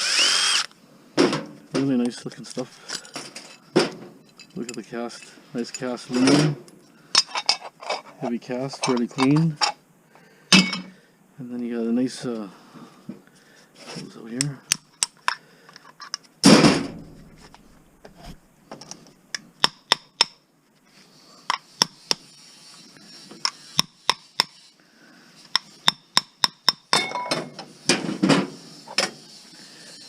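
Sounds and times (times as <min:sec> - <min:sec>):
metal tools clinking and knocking: 0:02.8 - 0:06.5, 0:07.2 - 0:09.8, 0:10.6 - 0:11.0, 0:26.9 - 0:27.6.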